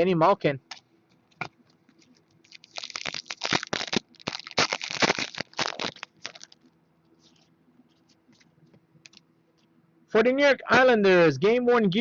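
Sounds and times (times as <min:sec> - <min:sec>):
wrapper crinkling: 0:01.9 - 0:09.2.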